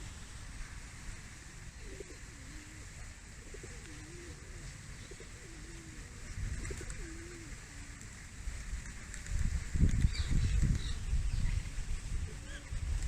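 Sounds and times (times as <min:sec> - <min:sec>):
pigeon cooing: 0:01.8 - 0:08.0.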